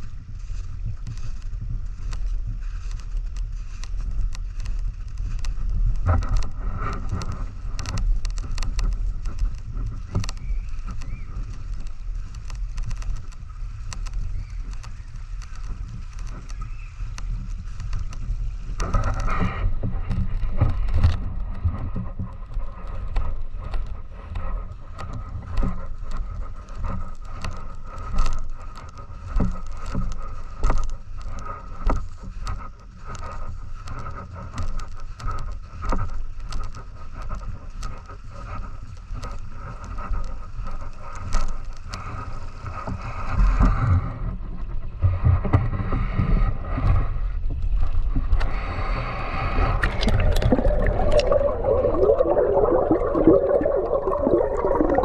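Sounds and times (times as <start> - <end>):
muffled rushing river water: 0.0 - 55.0
small clicks and knocks: 1.0 - 43.9.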